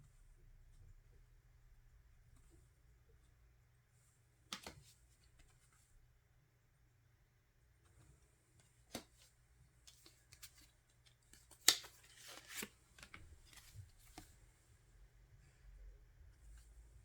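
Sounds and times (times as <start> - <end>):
paper and plastic rustling: 9.9 - 14.4.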